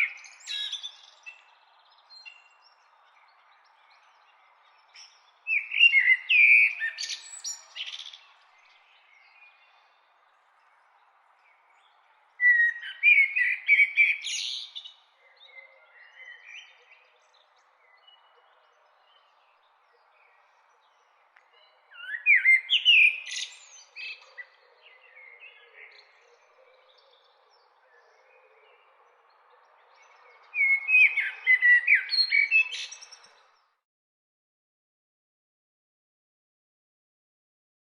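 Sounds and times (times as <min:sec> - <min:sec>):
faint background noise: 0:00.0 - 0:33.8
songbird singing: 0:00.0 - 0:33.8.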